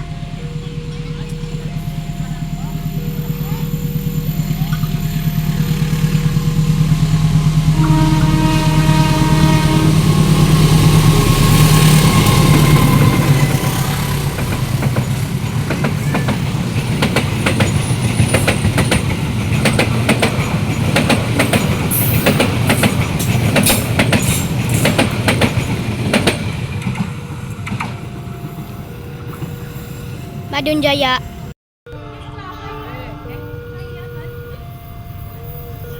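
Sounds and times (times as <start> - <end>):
locomotive engine: 0.0 - 35.9
train wheels clattering over rail joints: 10.8 - 28.2.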